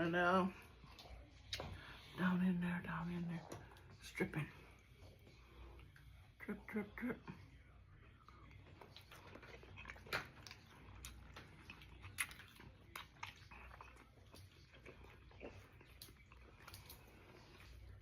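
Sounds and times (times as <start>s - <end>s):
person chewing food: 8.1s - 18.0s.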